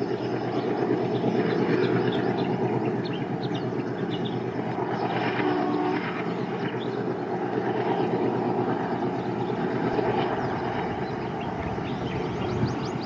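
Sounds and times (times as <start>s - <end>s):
distant diesel locomotive drone: 0.0s - 13.0s.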